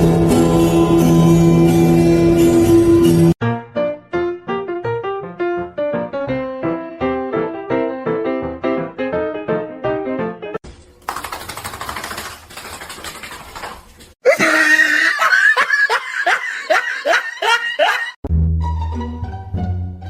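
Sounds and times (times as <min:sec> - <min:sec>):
background music: 0:00.0 - 0:10.6, 0:18.2 - 0:20.0
loud laughs in bursts: 0:14.2 - 0:18.2.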